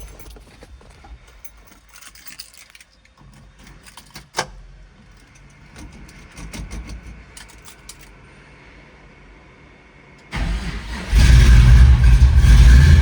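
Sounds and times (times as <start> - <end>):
clicks and knocks of handling: 0.0 - 8.2.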